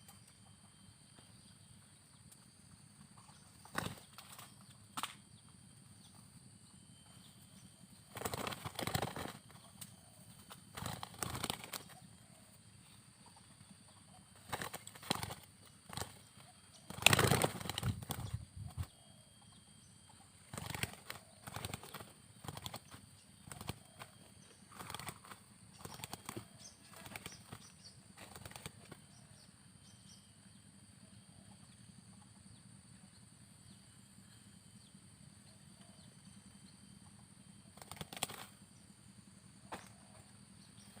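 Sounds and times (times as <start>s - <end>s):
bird wings flapping: 3.2s - 5.1s, 8.0s - 12.0s, 14.4s - 18.9s, 20.5s - 29.0s, 37.8s - 38.6s.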